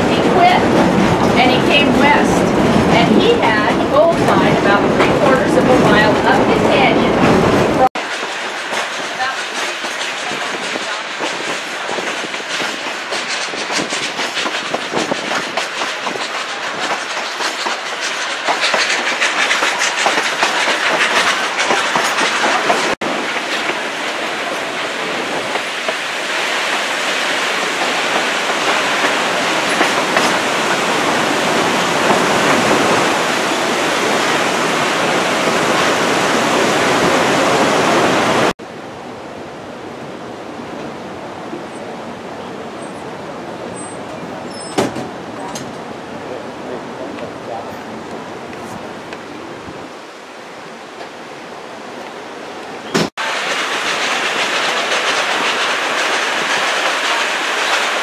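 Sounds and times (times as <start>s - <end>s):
train wheels clicking over joints: 0.1s - 37.5s, 52.9s - 58.0s.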